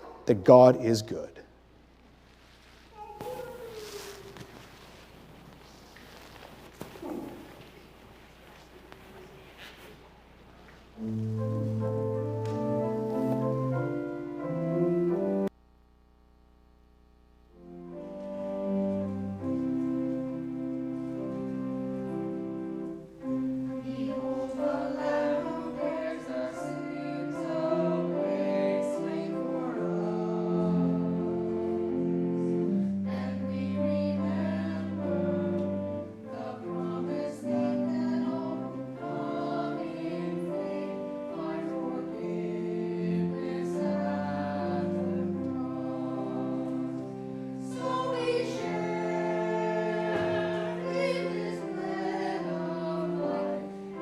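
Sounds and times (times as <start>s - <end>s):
sustained accompanying chords: 11.0s - 15.5s, 17.5s - 54.0s
choir singing: 17.9s - 54.0s.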